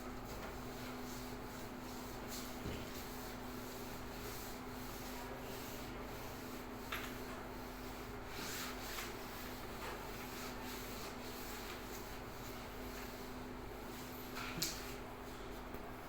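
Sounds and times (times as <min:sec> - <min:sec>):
sanding strokes on wooden floor: 0:07.9 - 0:13.0.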